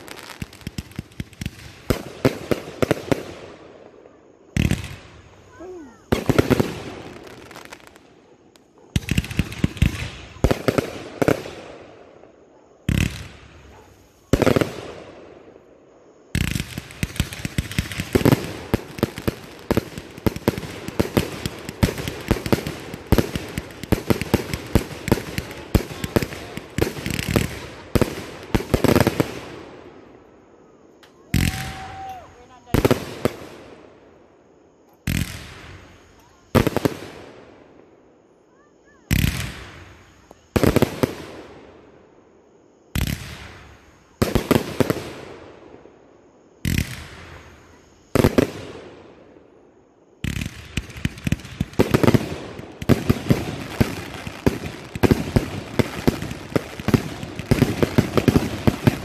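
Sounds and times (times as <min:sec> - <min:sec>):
fireworks cake firing: 0:00.0 - 0:15.6, 0:16.2 - 0:29.7, 0:31.0 - 0:33.8, 0:50.2 - 0:59.0.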